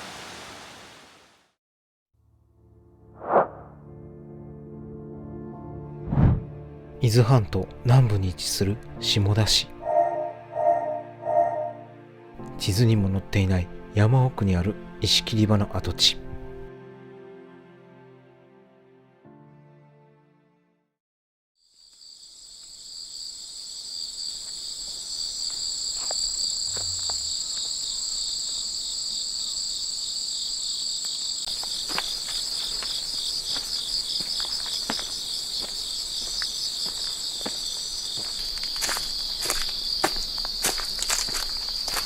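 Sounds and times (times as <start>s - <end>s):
insects singing: 9.1s - 11.8s, 21.9s - 42.0s
footsteps: 24.4s - 27.8s, 31.5s - 42.0s.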